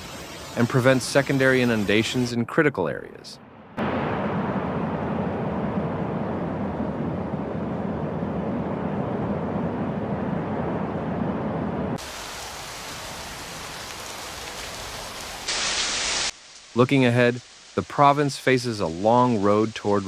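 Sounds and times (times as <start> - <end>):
thin hiss: 0.0 - 2.4, 12.0 - 20.0
water rushing: 3.8 - 20.0.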